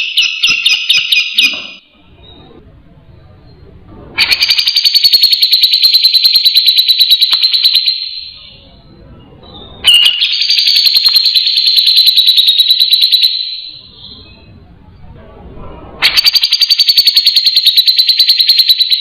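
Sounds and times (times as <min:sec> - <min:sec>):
bird harsh trills: 0:00.0 - 0:01.8, 0:04.2 - 0:08.7, 0:09.5 - 0:14.5, 0:16.0 - 0:19.0.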